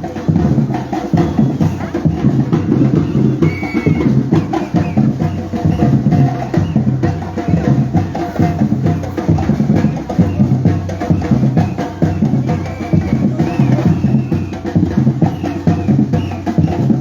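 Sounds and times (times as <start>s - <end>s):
bass drums: 0.0s - 17.0s
drum group playing: 0.0s - 17.0s.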